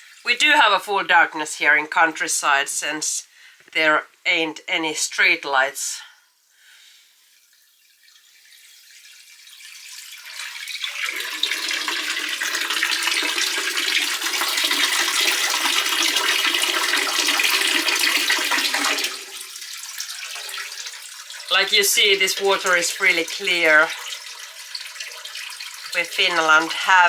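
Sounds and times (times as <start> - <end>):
water running into a bucket: 0.0 - 0.4, 6.2 - 27.0.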